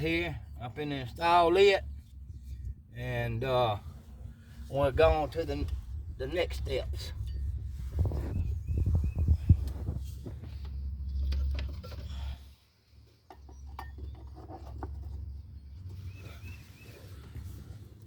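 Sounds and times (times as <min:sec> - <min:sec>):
low rumble: 0:00.0 - 0:12.4.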